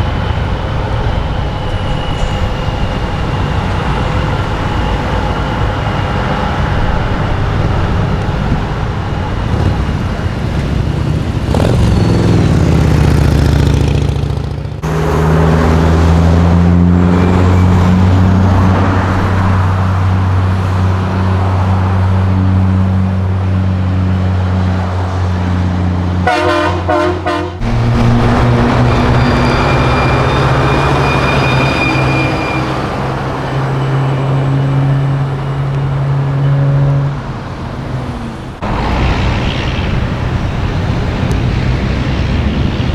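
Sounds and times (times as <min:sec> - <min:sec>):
truck diesel engines running: 0:00.0 - 0:42.9
short horn blasts: 0:26.2 - 0:33.1.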